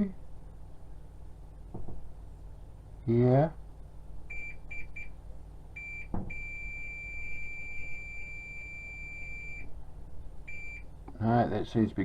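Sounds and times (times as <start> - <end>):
multimeter beeping: 5.8 - 9.7, 10.5 - 10.8.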